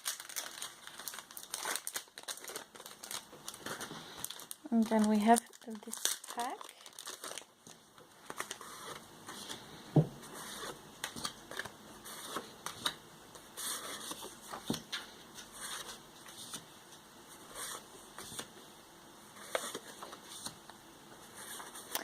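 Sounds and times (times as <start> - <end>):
paper cards rustling and sliding: 8.2 - 18.5, 19.4 - 22.0.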